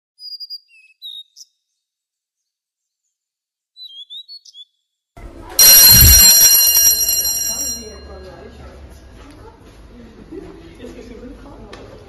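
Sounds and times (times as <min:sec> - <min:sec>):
small bird chirping: 0:00.2 - 0:01.8, 0:03.8 - 0:04.8
electric school bell ringing: 0:05.6 - 0:08.5.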